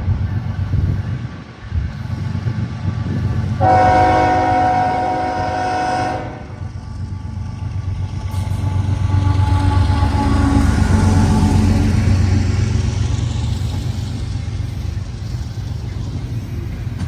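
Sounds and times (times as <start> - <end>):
passing train rumble: 0.0 - 17.0
locomotive horn chord: 3.6 - 6.6, 9.1 - 12.1.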